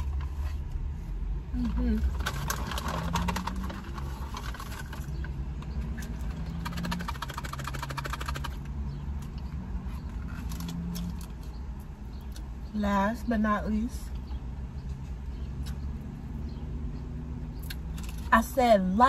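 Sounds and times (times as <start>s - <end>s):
food packaging crackling: 1.9s - 8.6s.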